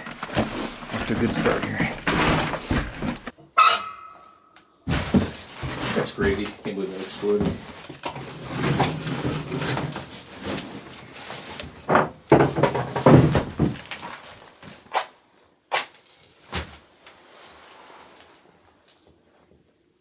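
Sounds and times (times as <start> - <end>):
rustling: 0.0 - 3.3, 4.9 - 11.9.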